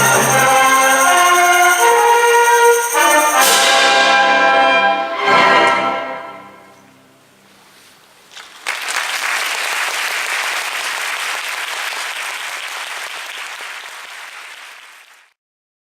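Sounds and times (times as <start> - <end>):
audience applauding: 0.0 - 1.9, 8.4 - 15.4
orchestra final chord ringing: 0.0 - 6.7.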